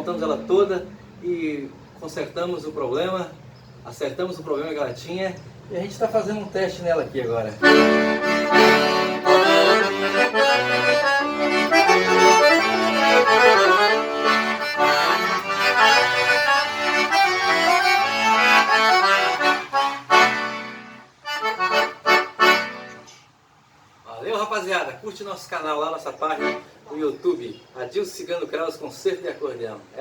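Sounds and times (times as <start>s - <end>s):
accordion playing lively tune: 7.6s - 23.2s, 26.3s - 27.1s.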